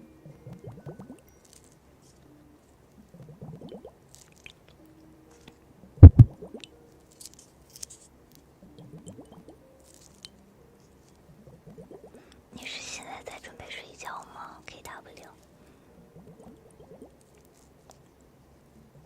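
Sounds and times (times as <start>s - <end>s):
squishy wet handling sounds: 3.1s - 4.8s
loud double thump: 6.0s - 6.3s.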